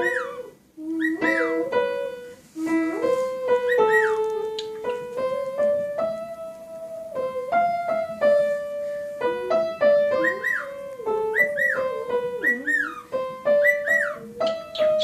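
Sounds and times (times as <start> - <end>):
cockatiel whistling: 0.0 - 1.6, 3.6 - 4.8, 10.1 - 15.0
piano single notes: 0.0 - 15.0.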